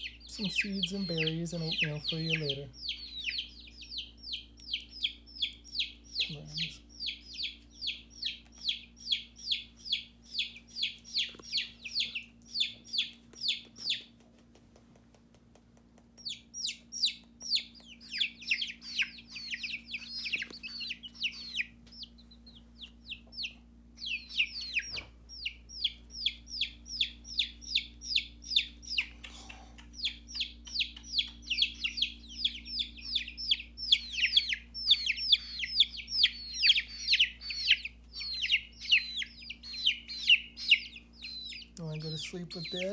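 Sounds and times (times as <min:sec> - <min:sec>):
chicks peeping: 0:00.0 - 0:42.9.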